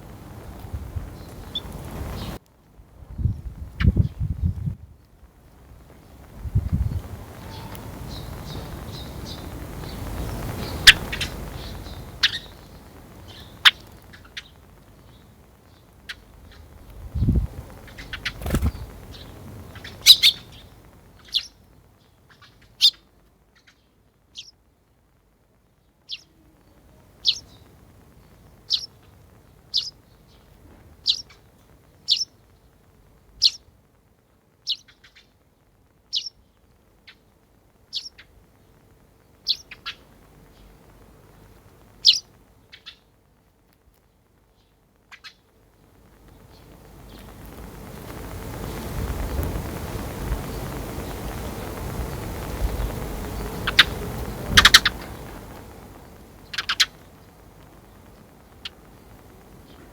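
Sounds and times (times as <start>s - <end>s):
sparrow chirping: 6.9s - 23.0s, 23.6s - 24.6s, 26.1s - 26.4s, 27.1s - 32.7s, 33.4s - 33.7s, 34.6s - 35.3s, 36.1s - 36.5s, 37.9s - 38.3s, 39.4s - 40.8s, 42.0s - 43.0s, 44.6s - 45.4s, 52.6s - 55.4s, 56.4s - 57.4s
rustling: 16.5s - 21.0s.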